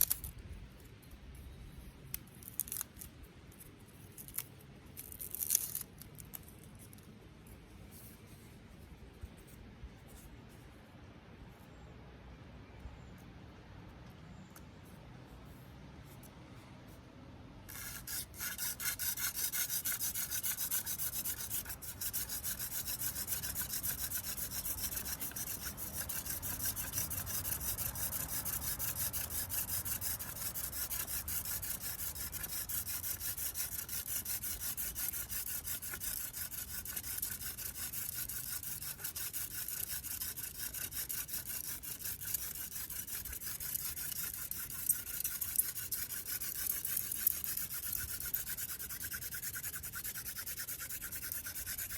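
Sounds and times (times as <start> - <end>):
wooden spindle rubbing on board: 17.7 - 51.9.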